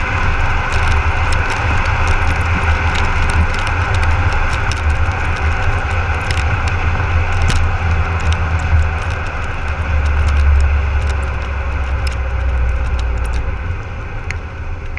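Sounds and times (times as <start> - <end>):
diesel engine droning: 0.0 - 14.9.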